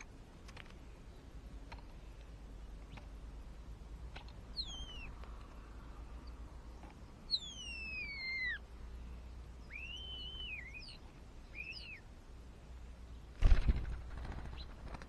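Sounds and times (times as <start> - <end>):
bird whistling calls: 4.6 - 5.1, 7.3 - 8.6, 9.6 - 12.1.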